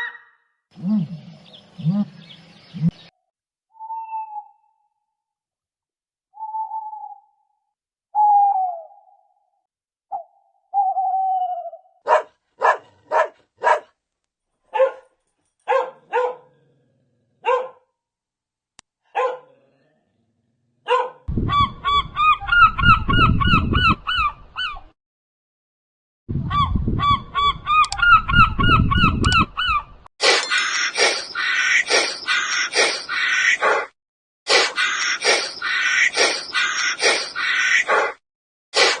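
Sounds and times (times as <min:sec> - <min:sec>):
rapid warbling calls: 0:30.2 - 0:33.6, 0:34.5 - 0:37.8
mixed animal chorus: 0:34.6 - 0:38.0.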